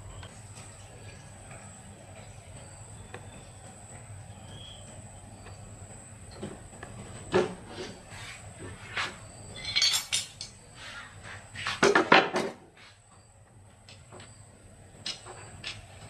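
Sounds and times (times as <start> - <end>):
metal tools clinking and clattering: 9.5 - 10.6.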